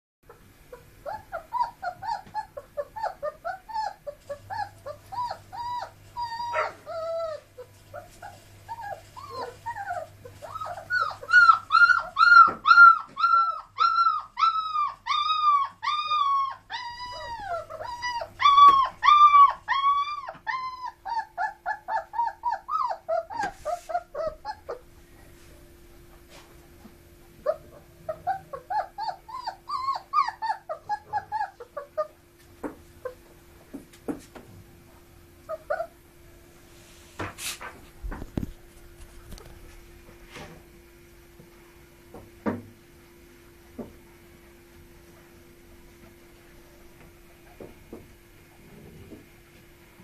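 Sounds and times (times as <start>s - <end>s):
puppies whining and squealing: 0.7s - 25.4s, 27.4s - 32.4s, 35.4s - 36.0s.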